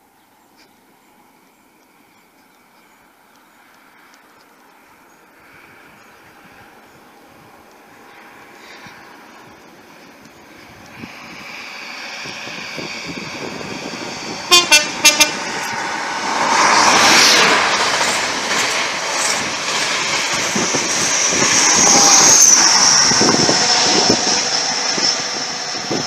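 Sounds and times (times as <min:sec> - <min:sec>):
diesel train approaching: 0:00.3 - 0:26.0
high whine: 0:05.9 - 0:26.0
train horn toots: 0:14.4 - 0:15.8.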